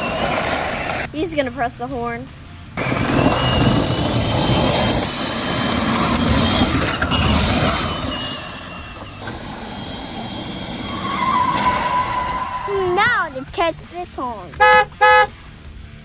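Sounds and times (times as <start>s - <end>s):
wheels rumbling over ground: 0.0s - 1.7s, 2.7s - 15.2s
toy electric motor whirring: 2.8s - 11.6s.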